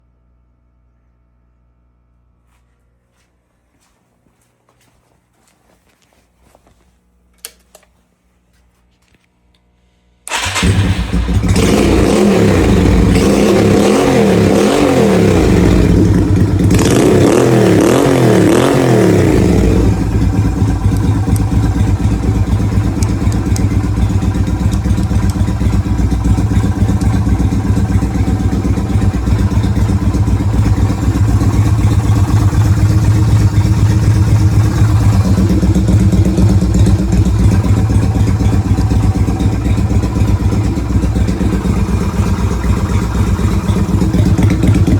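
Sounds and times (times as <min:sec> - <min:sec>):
motorcycle engine revving and idling: 0:10.3 - 0:44.9.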